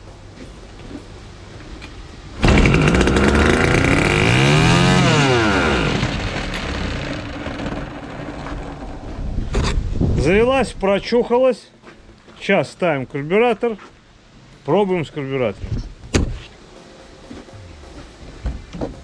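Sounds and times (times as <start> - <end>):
two-stroke trimmer engine revving: 2.4 - 9.2.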